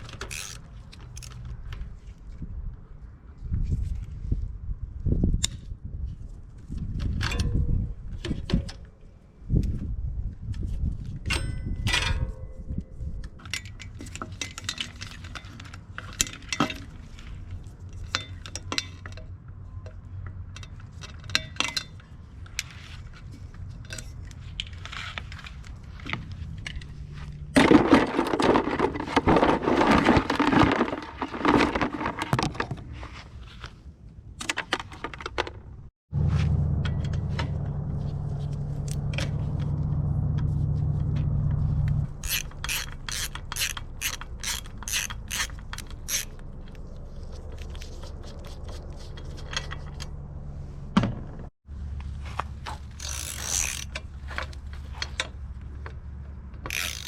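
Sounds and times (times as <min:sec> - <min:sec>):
metallic clinks of tools and bike parts: 0:11.2 - 0:27.0, 0:42.1 - 0:48.1
rough noise: 0:56.6 - 0:57.0.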